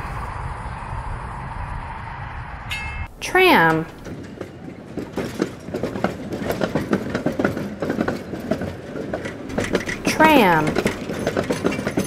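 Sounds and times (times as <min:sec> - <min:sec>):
tram wheels clacking on rails: 0:02.7 - 0:12.0.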